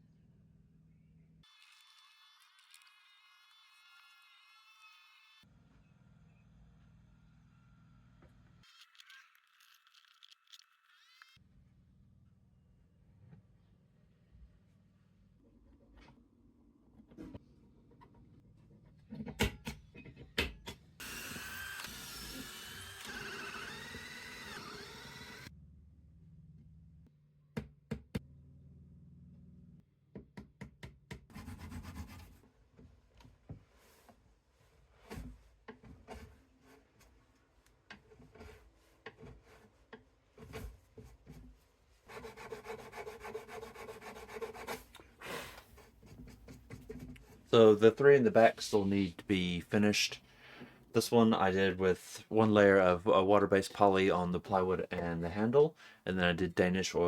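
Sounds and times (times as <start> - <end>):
electric power tool motor whine: 21.0 - 25.5
rubbing and scraping on plywood: 31.3 - 32.9, 33.6 - 47.8.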